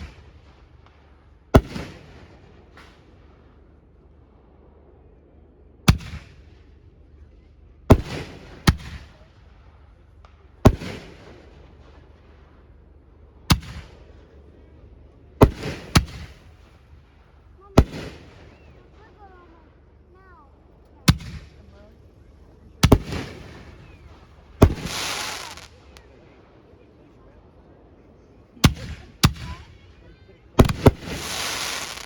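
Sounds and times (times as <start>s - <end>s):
fireworks bangs with echo: 0.0s - 3.4s, 7.9s - 9.8s, 10.4s - 12.2s, 13.5s - 14.4s, 15.4s - 19.6s, 21.0s - 22.0s, 22.8s - 26.1s, 28.6s - 29.8s, 30.6s - 32.0s.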